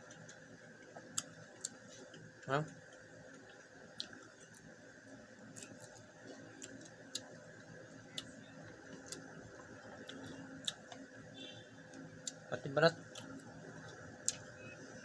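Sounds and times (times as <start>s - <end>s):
low steady hum: 0.0s - 15.0s
chewing shrimp shells clicks: 0.1s - 4.7s, 5.5s - 7.4s, 8.1s - 11.1s, 11.9s - 12.5s, 13.1s - 14.5s.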